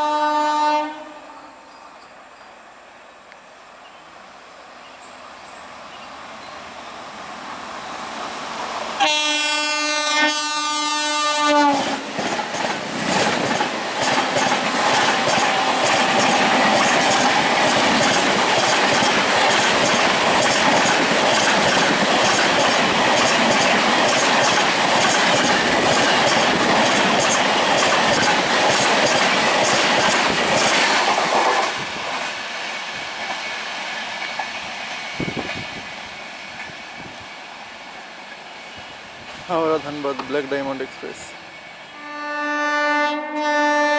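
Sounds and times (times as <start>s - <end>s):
train horn blast: 0.0s - 1.7s, 9.0s - 12.0s, 41.9s - 43.9s
passing train rushing: 0.0s - 43.9s
train wheels clickety-clack: 11.6s - 38.1s.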